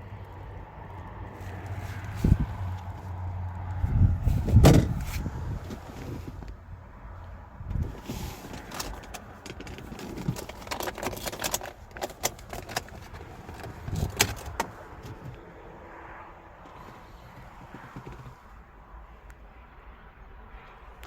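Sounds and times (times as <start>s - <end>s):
clicks and rattles from handling: 8.5s - 15.3s.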